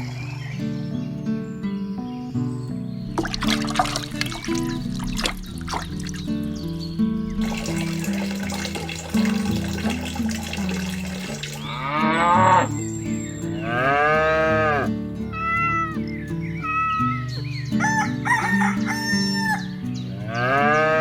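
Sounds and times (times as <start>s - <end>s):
background music: 2.8s - 15.2s
cows mooing: 11.6s - 12.8s, 13.6s - 14.9s, 20.3s - 21.0s
chickens calling: 16.6s - 19.8s
rooster crowing: 17.8s - 19.7s.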